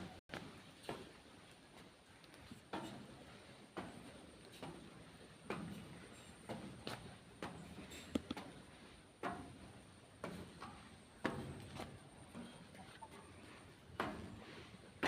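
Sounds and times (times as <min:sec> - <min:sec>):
footsteps on stairs: 0:00.0 - 0:15.0.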